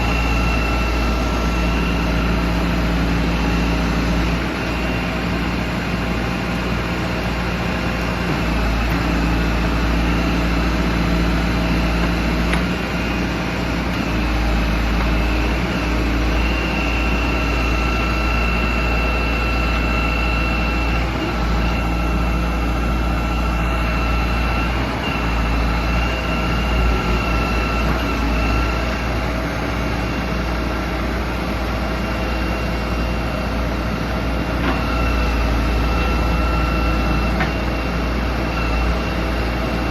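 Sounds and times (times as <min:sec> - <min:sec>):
high steady whine: 0:00.0 - 0:07.3
diesel engine rumbling: 0:00.0 - 0:39.9.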